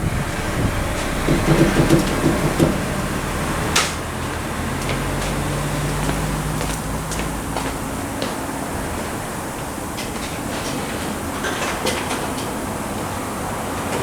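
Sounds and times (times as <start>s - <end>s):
steady low hum: 0.0s - 8.2s
hand tools clicking and knocking: 1.3s - 2.8s.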